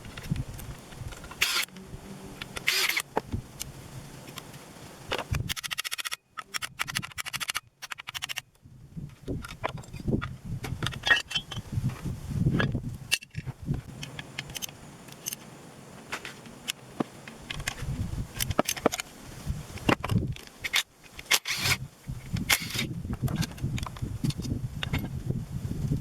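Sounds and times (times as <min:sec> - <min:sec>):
metal tools clinking and scraping: 0:10.8 - 0:11.6, 0:14.0 - 0:15.5.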